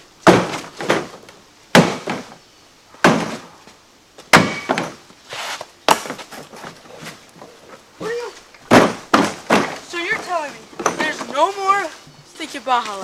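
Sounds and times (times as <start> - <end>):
heavy blows on wood: 0.2 - 2.4, 3.0 - 5.1, 8.0 - 11.4.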